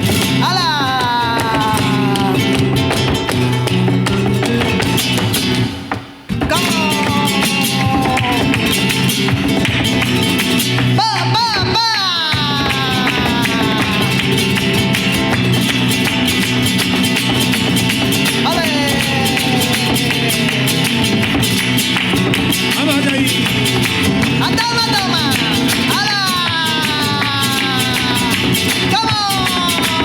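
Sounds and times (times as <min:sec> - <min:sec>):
person singing: 0:00.0 - 0:03.0, 0:06.4 - 0:09.0, 0:10.9 - 0:15.0, 0:18.2 - 0:21.1, 0:24.4 - 0:30.0
flamenco guitar: 0:00.0 - 0:30.0
percussive clapping or footwork: 0:00.0 - 0:30.0.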